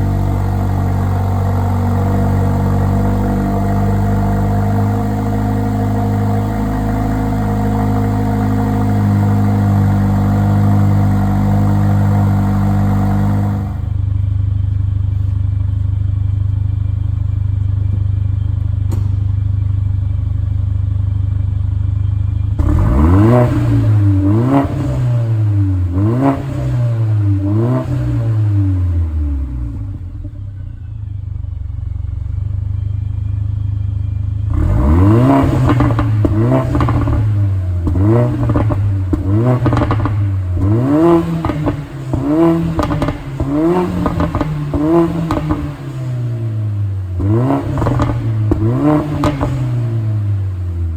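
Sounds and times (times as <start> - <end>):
engine revving: 0.0 - 14.2, 22.5 - 30.7, 34.1 - 50.9
car engine idling: 0.0 - 50.9.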